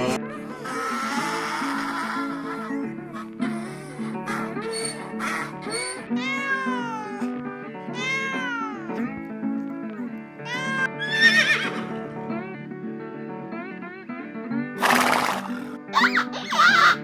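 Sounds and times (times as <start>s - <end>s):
background music: 0.0s - 17.0s
cat meowing: 0.3s - 9.2s, 10.4s - 11.9s.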